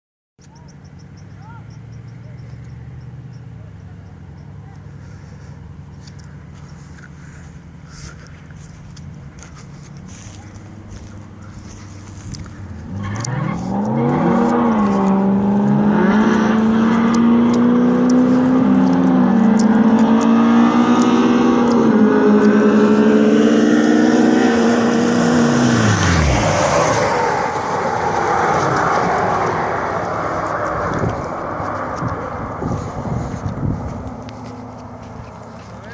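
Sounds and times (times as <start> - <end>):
engines accelerating hard: 0.4 - 35.9
vehicle passing: 0.8 - 35.9.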